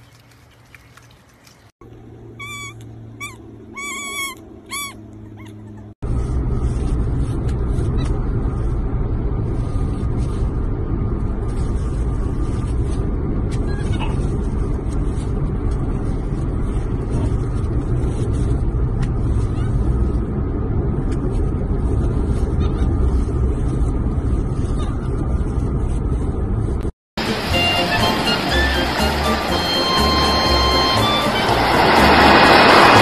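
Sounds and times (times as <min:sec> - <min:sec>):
car cabin road and engine noise: 0:01.7 - 0:33.0
high bending animal chirps: 0:02.4 - 0:05.9.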